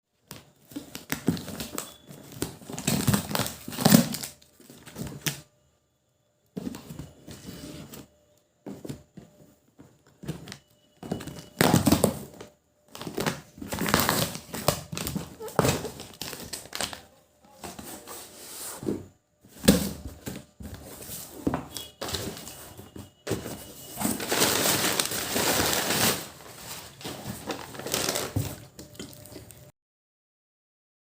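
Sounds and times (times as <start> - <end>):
packaging crinkling and rustling: 0.2 - 5.5, 9.9 - 29.7
items being set down: 17.6 - 29.6.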